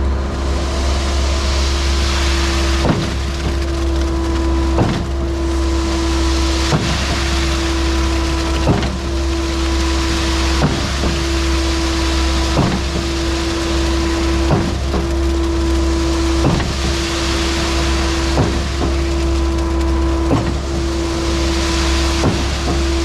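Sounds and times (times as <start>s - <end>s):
engine and hydraulic drone: 0.0s - 23.0s
pump knock and falling sweep: 0.0s - 23.0s.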